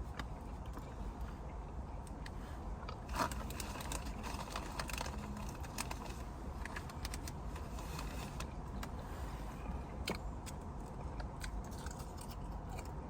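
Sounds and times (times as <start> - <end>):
steady low rumble: 0.0 - 13.0
chewing a sandwich: 2.9 - 13.0.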